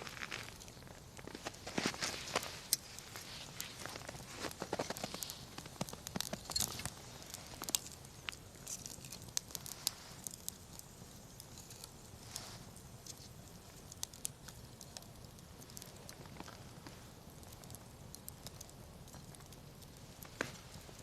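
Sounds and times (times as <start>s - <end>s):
campfire crackling and popping: 0.0s - 21.0s
low hiss: 0.0s - 21.0s.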